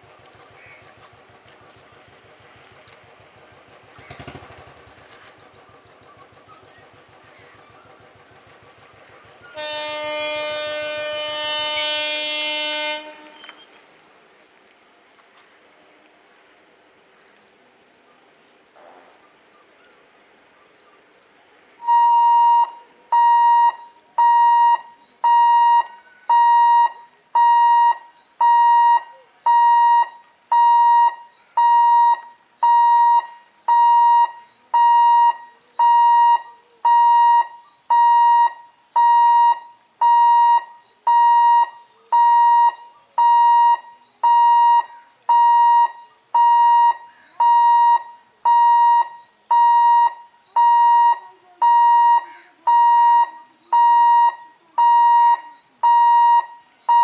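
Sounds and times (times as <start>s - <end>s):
level crossing buzzer beeping: 21.8s - 57.0s.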